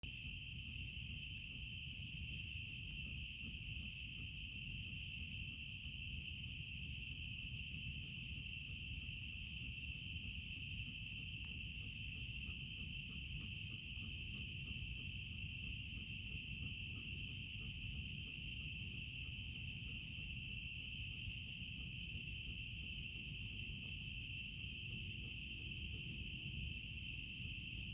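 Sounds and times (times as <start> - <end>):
crickets chirping: 0.0 - 27.9
faint campfire crackles: 0.0 - 27.9.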